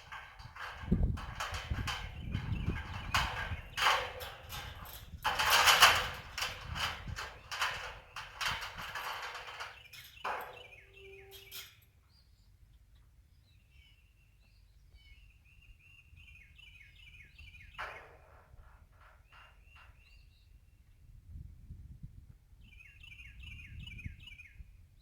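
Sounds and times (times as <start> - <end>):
rustling knocks: 0.0 - 10.8
birds chirping: 7.2 - 18.1.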